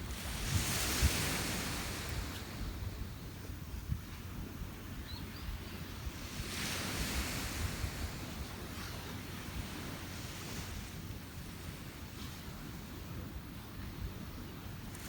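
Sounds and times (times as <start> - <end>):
sea waves washing up beach: 0.0 - 3.1, 6.0 - 14.2
wind rumble on microphone: 0.0 - 15.0.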